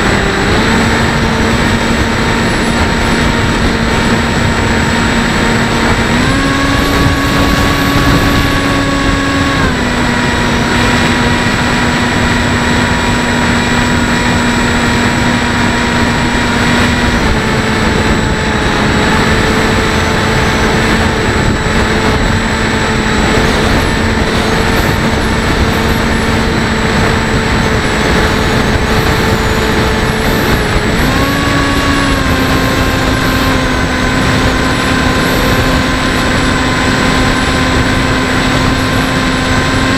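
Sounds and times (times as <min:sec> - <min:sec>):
electric motor and propeller whine: 0:00.0 - 0:39.9
wind rush over microphone: 0:00.0 - 0:39.9.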